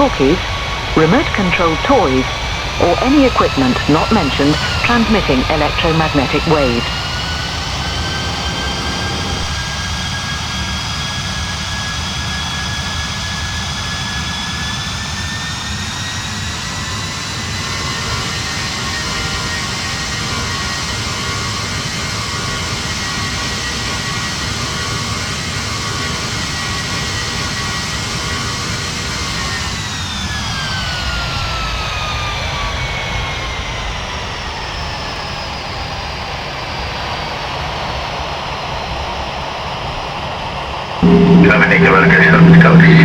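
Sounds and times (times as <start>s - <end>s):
jet engine whine: 0.0s - 43.0s
steady rush of cabin noise: 41.0s - 43.0s.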